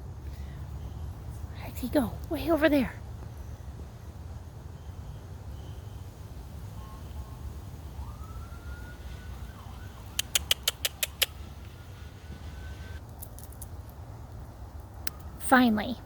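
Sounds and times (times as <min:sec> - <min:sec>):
sharp clicks: 0:10.1 - 0:11.8.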